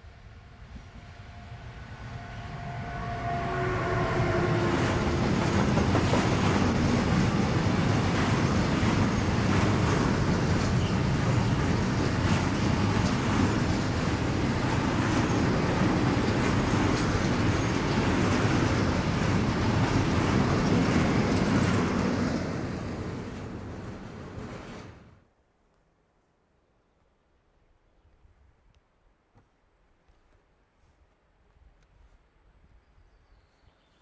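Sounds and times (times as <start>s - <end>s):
freight train wheels rumbling on rails: 0.4s - 25.1s.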